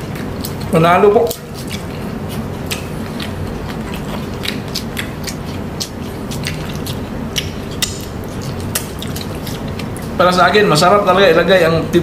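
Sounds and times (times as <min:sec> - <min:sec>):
people chewing: 0:00.0 - 0:11.7
low steady hum: 0:00.0 - 0:12.0
wet mouth smacks: 0:01.3 - 0:10.2.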